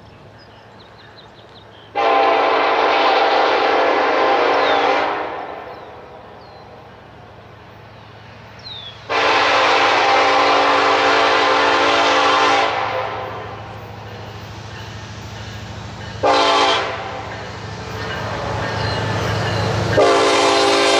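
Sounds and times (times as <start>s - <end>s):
train rumble: 0.0s - 20.9s
locomotive air horn blast: 2.0s - 5.6s, 9.1s - 13.5s, 16.2s - 17.3s, 20.0s - 20.9s.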